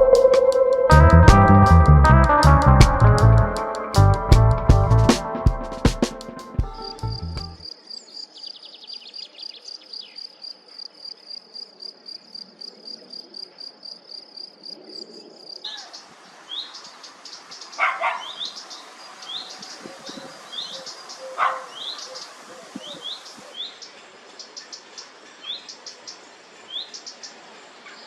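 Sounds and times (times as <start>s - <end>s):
birds chirping: 0.0s - 1.0s, 15.2s - 28.0s
lower bird call: 0.0s - 1.8s, 15.7s - 24.6s
cricket chirping: 6.3s - 28.0s.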